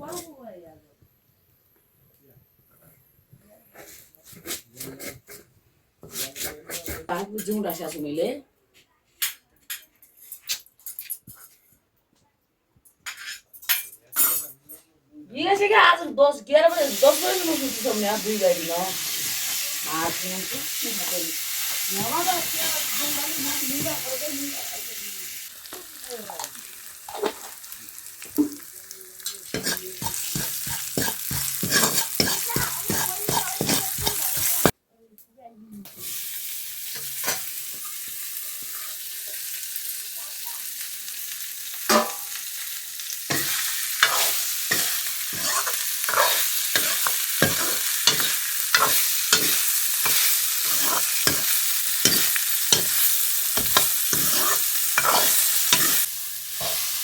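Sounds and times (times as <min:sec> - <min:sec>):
food sizzling in a pan: 0:00.0 - 0:00.6, 0:16.6 - 0:34.8, 0:35.8 - 0:57.0
spoon scraping a pan: 0:03.7 - 0:08.0, 0:19.2 - 0:24.6, 0:28.4 - 0:34.7, 0:37.0 - 0:39.4, 0:41.9 - 0:42.4, 0:43.3 - 0:57.0.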